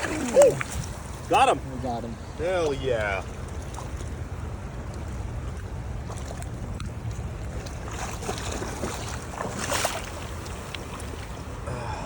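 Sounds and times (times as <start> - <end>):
moving water: 0.0 - 12.0.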